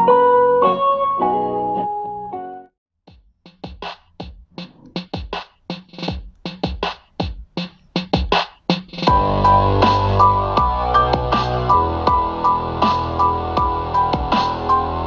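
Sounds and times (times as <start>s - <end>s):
keyboard tune: 0.0s - 2.7s
electronic drum-machine beat: 3.1s - 14.8s.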